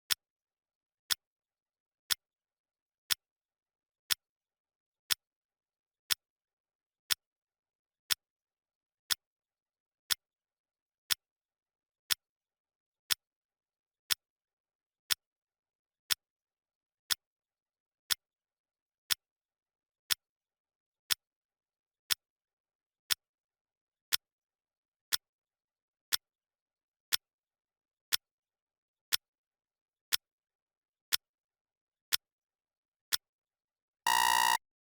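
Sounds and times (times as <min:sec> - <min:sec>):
clock ticking: 0:34.1 - 0:34.6.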